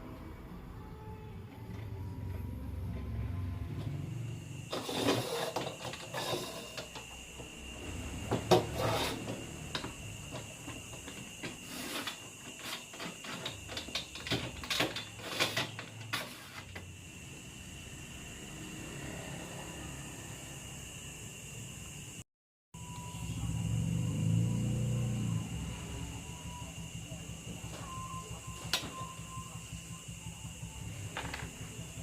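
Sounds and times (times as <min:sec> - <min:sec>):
faint high whine: 0:22.8 - 0:32.0.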